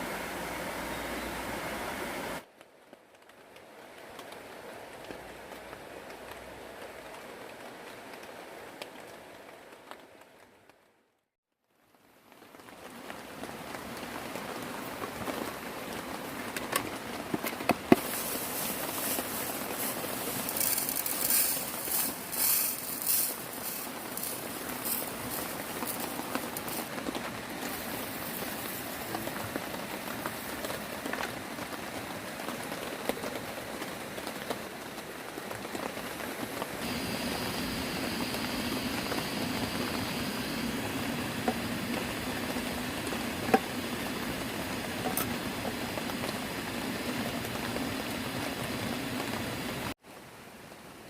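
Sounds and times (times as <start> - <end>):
steady rain hiss: 0.0 - 51.0
raindrops ticking: 12.3 - 40.4.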